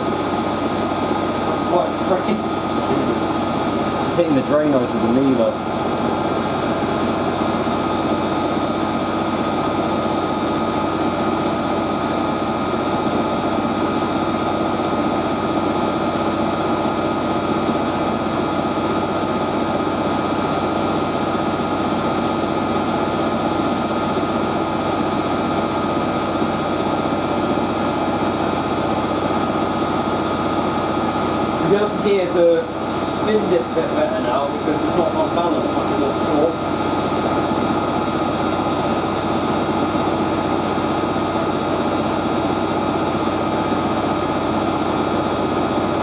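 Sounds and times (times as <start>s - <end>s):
washing machine spinning: 0.0s - 46.0s.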